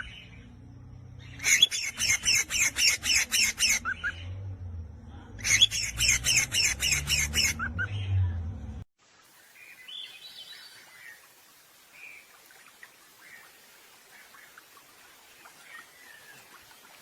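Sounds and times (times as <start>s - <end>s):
songbird singing repeated notes: 5.4s - 8.3s.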